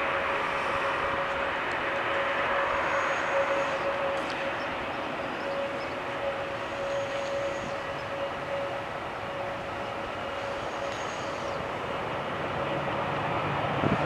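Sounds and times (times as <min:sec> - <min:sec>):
jet engines rushing: 0:00.0 - 0:14.0.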